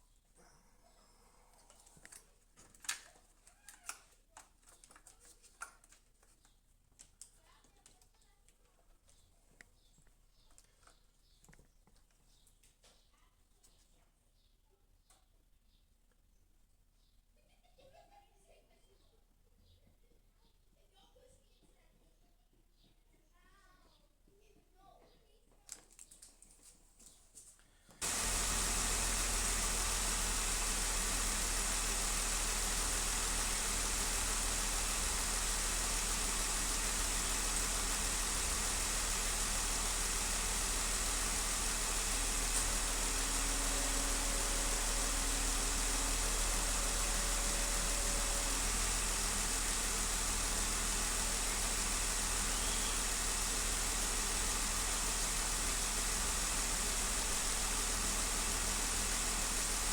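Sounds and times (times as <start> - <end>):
car engine idling with misfire: 28.0 - 59.9.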